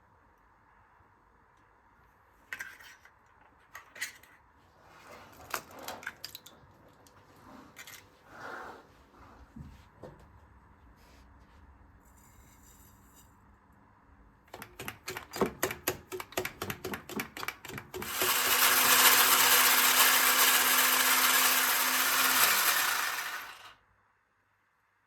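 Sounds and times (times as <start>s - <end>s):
blender motor running: 18.0s - 23.7s.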